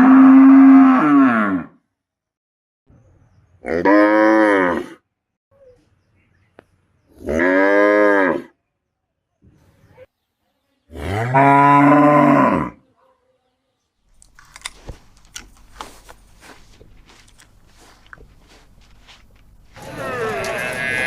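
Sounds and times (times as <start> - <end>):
cow mooing: 0.0 - 1.7, 19.8 - 21.0
rustling: 14.2 - 21.0.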